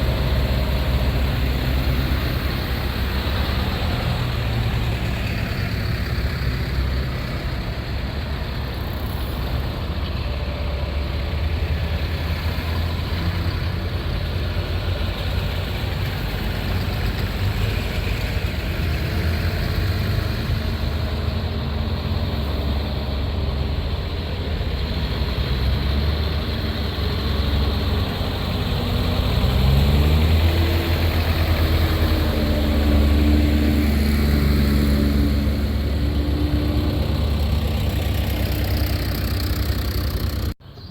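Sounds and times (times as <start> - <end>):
tractor engine running: 0.0 - 40.6.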